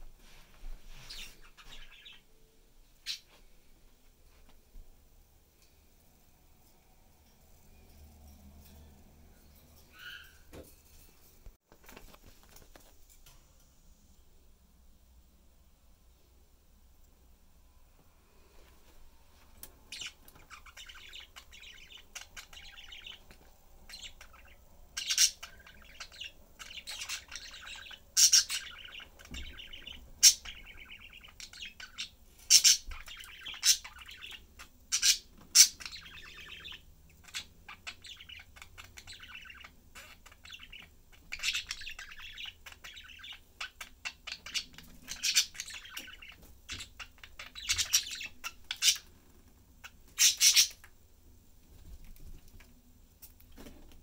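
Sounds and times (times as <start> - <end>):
budgerigars chattering: 19.9 - 49.1, 49.8 - 50.9.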